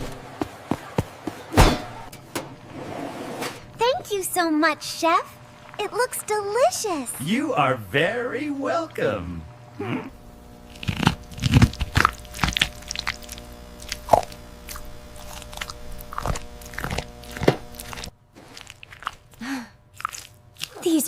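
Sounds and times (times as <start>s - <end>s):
background hum: 0.0s - 21.0s
cartoon biting and chewing: 10.7s - 21.0s.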